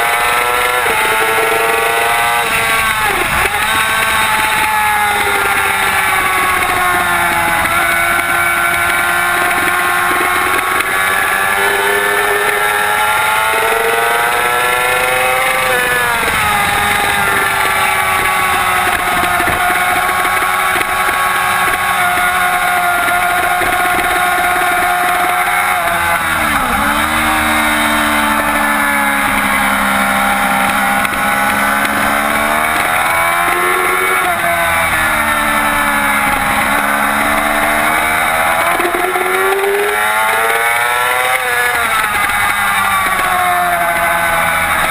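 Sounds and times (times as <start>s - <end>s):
motorcycle engine at high revs: 0.0s - 44.9s.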